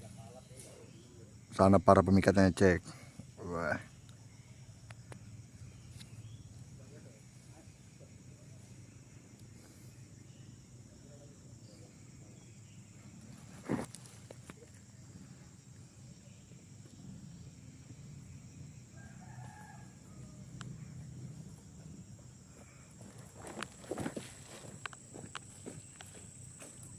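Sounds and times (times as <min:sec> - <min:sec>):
rooster crowing faintly: 0:18.9 - 0:20.9.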